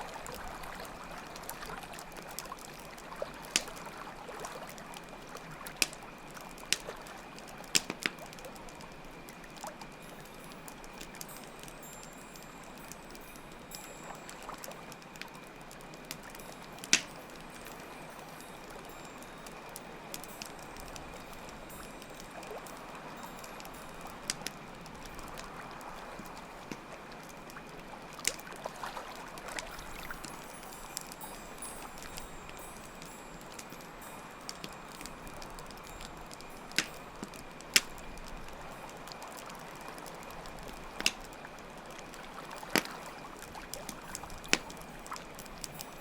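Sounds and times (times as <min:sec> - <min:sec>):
campfire crackling: 0:00.0 - 0:46.0
sharp fire pops: 0:16.8 - 0:17.2, 0:36.7 - 0:38.3.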